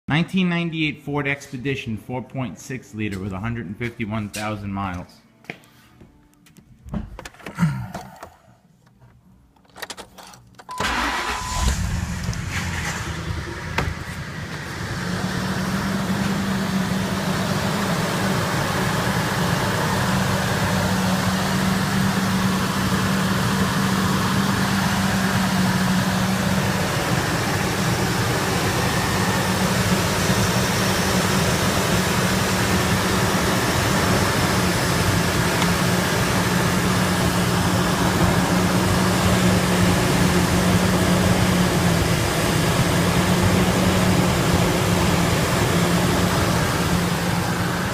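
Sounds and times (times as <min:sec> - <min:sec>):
car engine starting and idling: 0:09.6 - 0:47.9.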